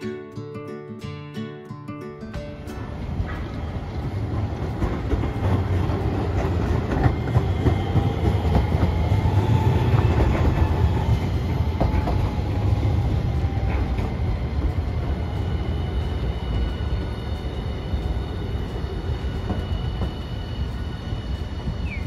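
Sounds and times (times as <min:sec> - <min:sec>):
tram rumble: 0:02.3 - 0:22.0
wheels clicking over rails: 0:02.4 - 0:22.0
faint whine: 0:02.7 - 0:22.0.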